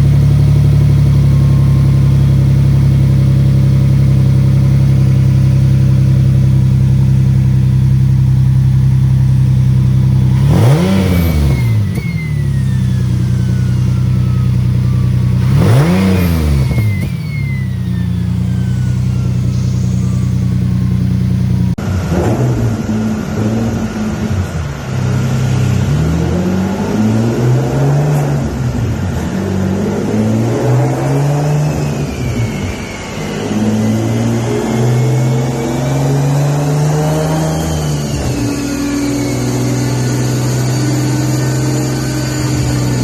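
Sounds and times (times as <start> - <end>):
car engine idling and revving: 0.0 - 43.0
turbo whistle falling: 10.1 - 21.3, 31.0 - 43.0.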